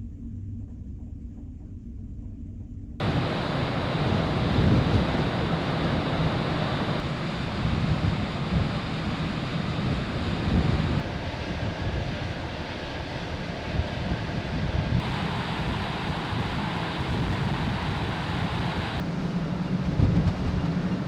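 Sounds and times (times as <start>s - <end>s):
ferry engine low rumble: 0.0s - 21.0s
sea rushing: 3.0s - 19.0s
wind blowing on microphone: 3.0s - 19.0s.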